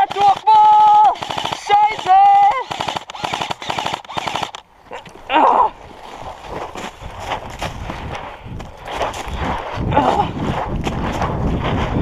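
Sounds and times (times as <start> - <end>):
airsoft rifle firing bursts: 0.0 - 4.6
rapid cracks: 0.0 - 4.6.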